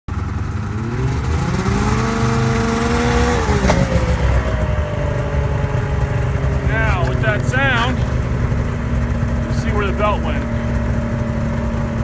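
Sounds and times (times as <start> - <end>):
snowmobile engine revving: 0.1 - 12.0.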